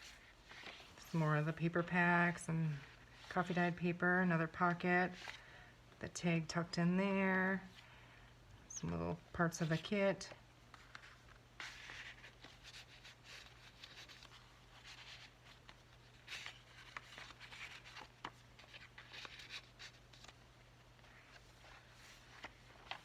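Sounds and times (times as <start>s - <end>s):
paper pages rustling: 0.0s - 1.2s, 10.7s - 23.0s.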